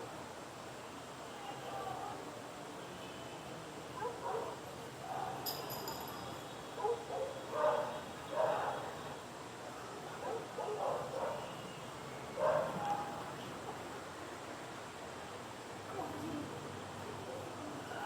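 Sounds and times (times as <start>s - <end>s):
city background noise: 0.0s - 18.0s
dog barking: 4.0s - 5.4s, 6.8s - 8.8s, 10.2s - 11.5s, 12.4s - 13.1s.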